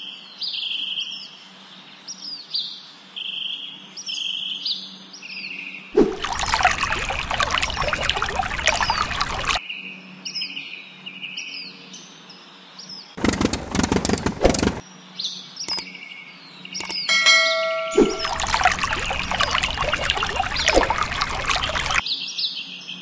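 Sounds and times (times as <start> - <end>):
small birds chirping: 6.3 - 9.6
harsh crackling noise: 13.2 - 14.8.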